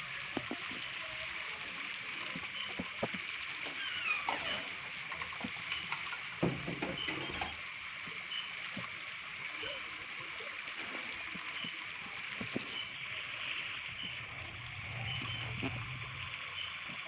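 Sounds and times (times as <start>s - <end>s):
steady hiss: 0.0s - 17.0s
thin gliding chirps: 9.5s - 17.0s.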